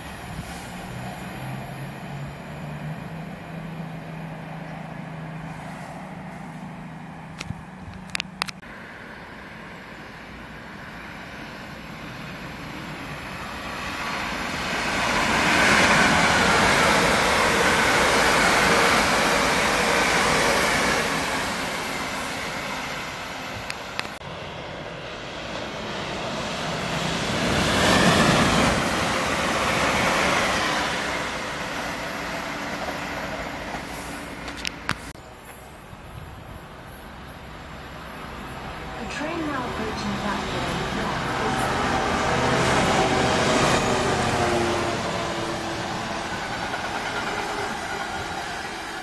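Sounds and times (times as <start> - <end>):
train wheels rumbling on rails: 11.3 - 49.0.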